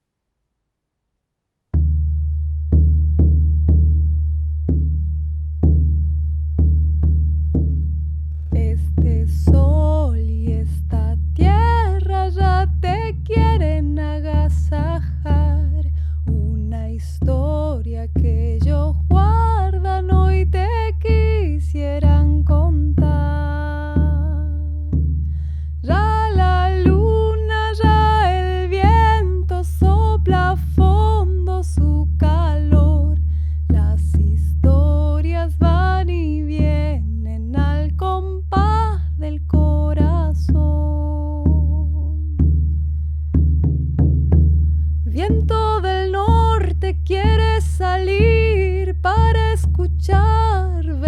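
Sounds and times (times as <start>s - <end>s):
frame drum beat: 1.8s - 40.7s, 41.4s - 50.8s
person singing wordless melody: 8.5s - 25.0s, 25.8s - 42.4s, 45.1s - 51.0s
frame drum booming strikes: 41.4s - 44.9s.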